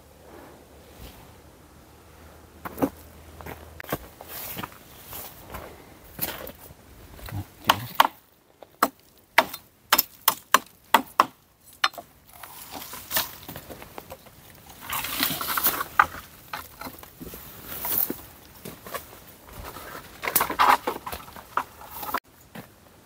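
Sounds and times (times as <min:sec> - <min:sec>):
wood chopping knocks: 0:07.6 - 0:08.2
rustling and crackling: 0:11.7 - 0:22.8.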